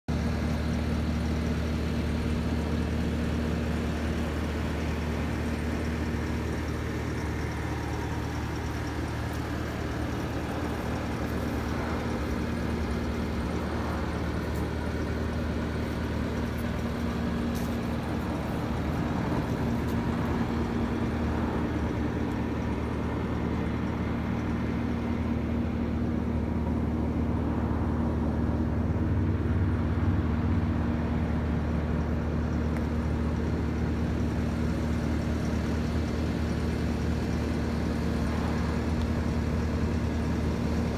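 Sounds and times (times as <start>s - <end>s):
skid steer engine humming: 0.1s - 40.9s.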